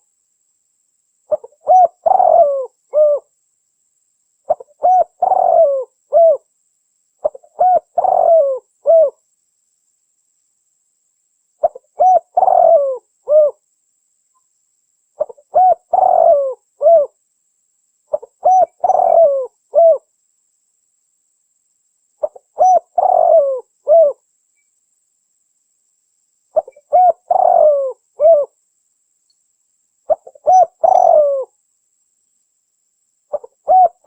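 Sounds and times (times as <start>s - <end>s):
dove cooing: 1.3s - 3.3s, 4.5s - 6.4s, 7.2s - 9.2s, 11.6s - 13.6s, 15.2s - 17.2s, 18.1s - 20.1s, 22.2s - 24.2s, 26.6s - 28.6s, 30.1s - 31.5s, 33.3s - 34.0s.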